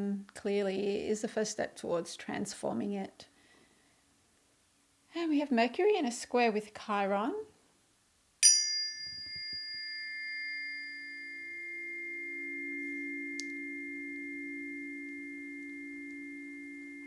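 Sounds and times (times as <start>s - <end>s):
faint high ring: 8.4s - 17.0s
tuning fork tap: 8.4s - 17.0s
tuning forks ringing low tones: 8.4s - 17.0s.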